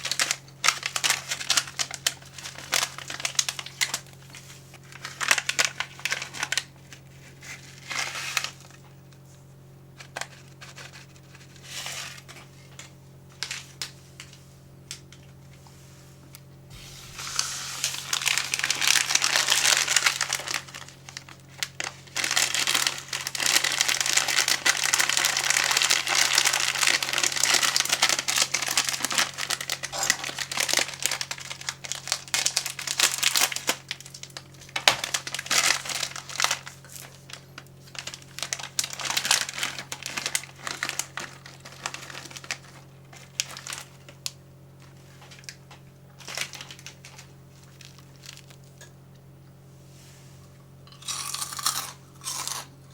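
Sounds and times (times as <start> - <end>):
plastic packaging crinkling: 0.0 - 8.9, 16.7 - 48.8.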